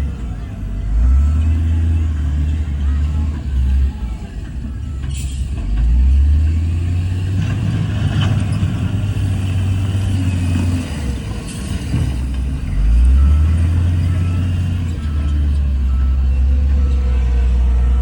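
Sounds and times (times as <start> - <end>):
heavy diesel engine rumbling: 0.0 - 18.0.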